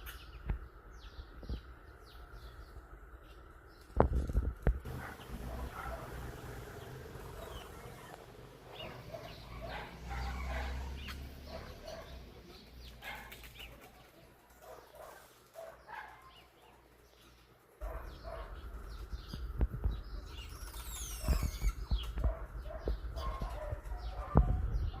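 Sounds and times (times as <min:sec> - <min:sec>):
birds chirping and whistling: 0:04.9 - 0:13.8, 0:15.8 - 0:25.0.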